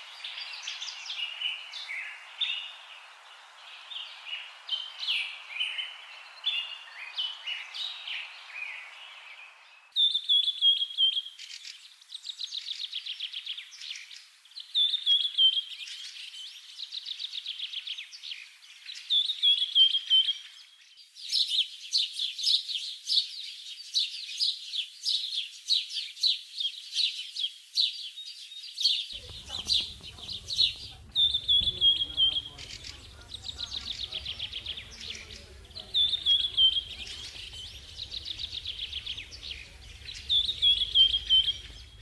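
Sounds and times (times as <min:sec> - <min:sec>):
bird whistle and trill: 0:29.2 - 0:42.0
quick bird chirps: 0:29.2 - 0:42.0.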